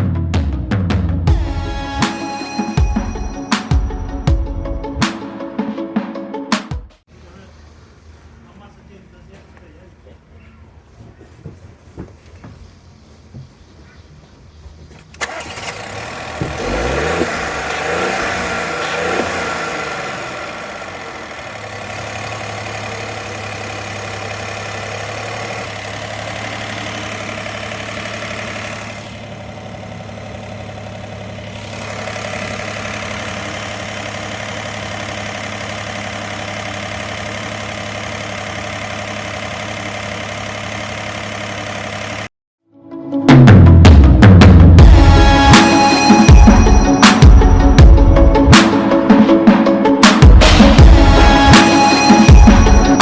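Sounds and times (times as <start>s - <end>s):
car engine idling: 7.1s - 10.0s, 14.4s - 42.3s, 44.8s - 53.0s
starter cranking car engine: 15.0s - 42.3s.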